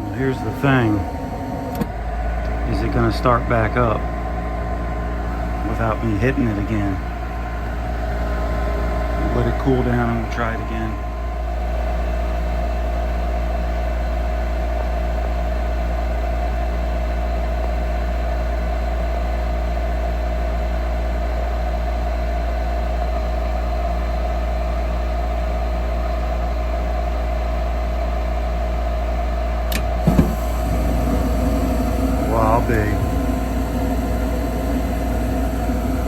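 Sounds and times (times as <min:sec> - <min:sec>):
furnace blower fan humming: 0:00.0 - 0:14.1, 0:29.6 - 0:36.0.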